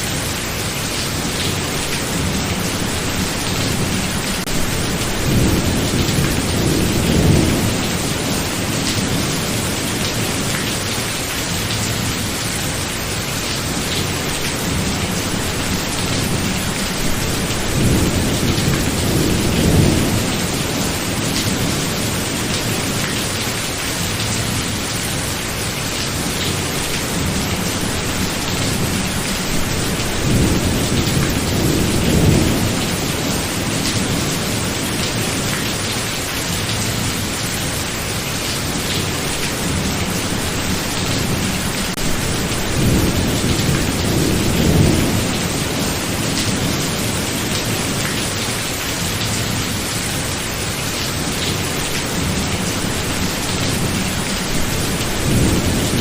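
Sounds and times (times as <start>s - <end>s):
heavy rain: 0.0s - 56.0s
low thunder rumbling: 2.1s - 10.5s, 14.6s - 23.0s, 27.0s - 34.7s, 39.6s - 48.0s, 52.2s - 56.0s.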